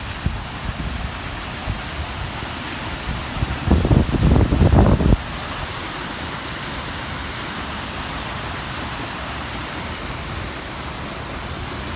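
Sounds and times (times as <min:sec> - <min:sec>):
wind buffeting microphone: 0:00.0 - 0:05.9
floodwater rushing: 0:00.0 - 0:11.9.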